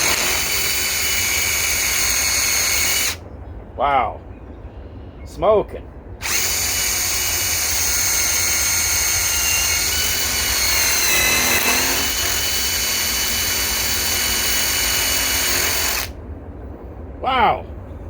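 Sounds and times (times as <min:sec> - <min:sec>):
impact wrench whining: 0:00.0 - 0:03.2, 0:06.2 - 0:16.2.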